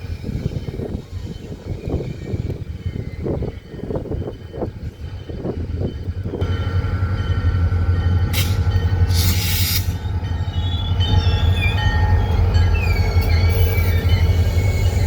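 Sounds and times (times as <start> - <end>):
diesel locomotive drone: 0.0 - 15.0
wheel squeal: 9.1 - 15.0.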